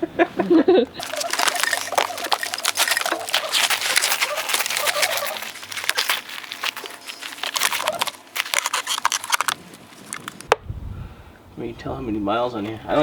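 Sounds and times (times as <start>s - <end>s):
mud crackling and scraping: 1.0s - 10.5s.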